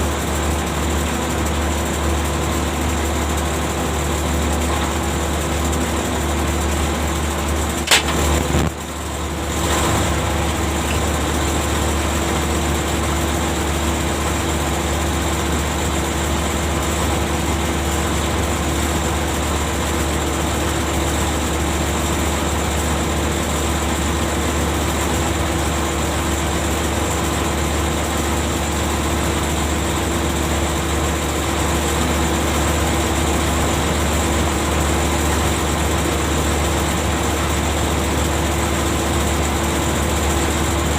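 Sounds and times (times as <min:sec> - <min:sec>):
deck machinery humming: 0:00.0 - 0:40.9.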